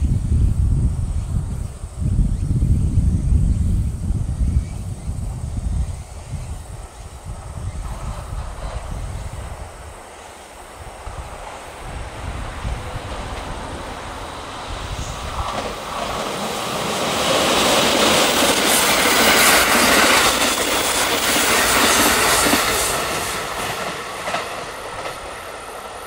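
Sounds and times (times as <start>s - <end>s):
electric train passing at speed: 0.0s - 26.0s
wheels clacking over rail joints: 7.7s - 26.0s.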